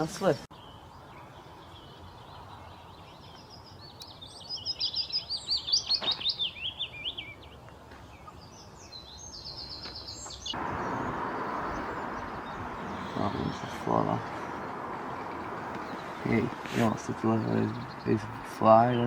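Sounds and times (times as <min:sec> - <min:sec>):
songbird warbling and trilling: 0:00.0 - 0:19.0
steady rushing noise: 0:10.5 - 0:17.8.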